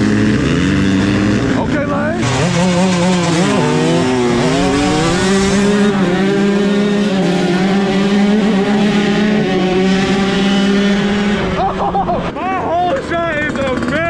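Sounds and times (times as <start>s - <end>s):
dirt bike engine at high revs: 0.0s - 14.0s.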